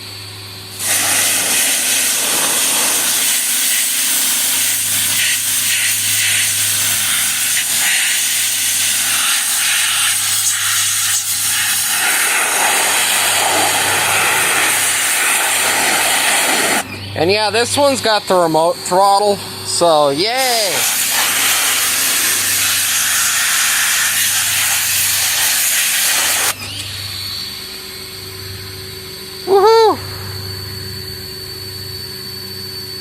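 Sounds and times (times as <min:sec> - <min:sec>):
small engine running: 0:00.0 - 0:33.0
loud steady hiss: 0:00.7 - 0:18.0, 0:19.7 - 0:26.6.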